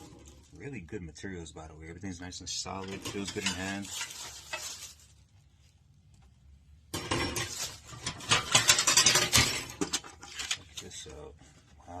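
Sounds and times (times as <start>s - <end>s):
clattering and crinkling packaging: 0.0s - 0.7s, 2.7s - 6.3s, 6.9s - 12.0s.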